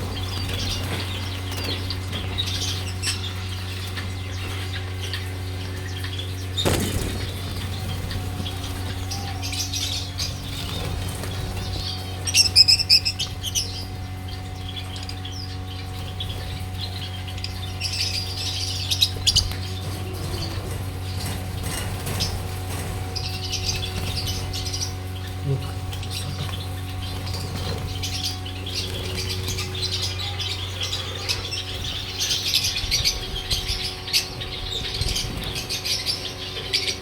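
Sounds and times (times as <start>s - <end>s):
small birds chirping: 0.0s - 37.0s
steady low hum: 0.0s - 37.0s.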